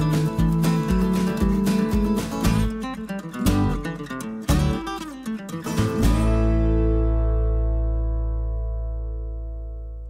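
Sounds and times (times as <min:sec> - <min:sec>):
strummed guitar: 0:00.0 - 0:10.0
final chord with deep bass: 0:06.1 - 0:10.0.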